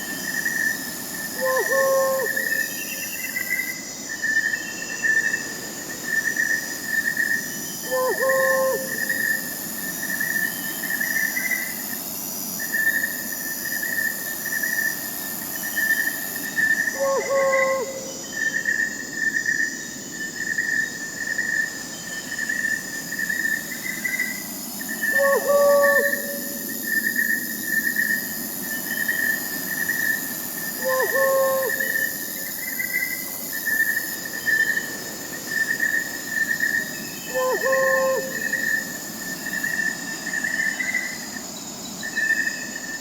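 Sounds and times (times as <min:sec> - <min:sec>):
crickets trilling: 0:00.0 - 0:43.0
owl hooting: 0:01.4 - 0:03.0, 0:07.8 - 0:09.4, 0:17.0 - 0:18.2, 0:25.0 - 0:26.8, 0:30.8 - 0:32.5, 0:37.2 - 0:38.9.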